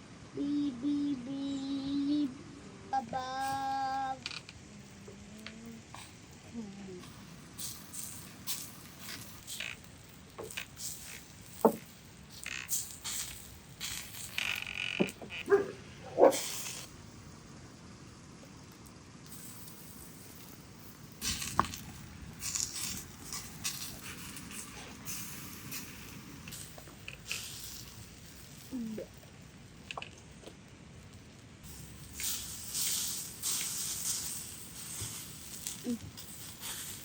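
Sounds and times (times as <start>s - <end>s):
dog yelping: 15.4s - 16.4s.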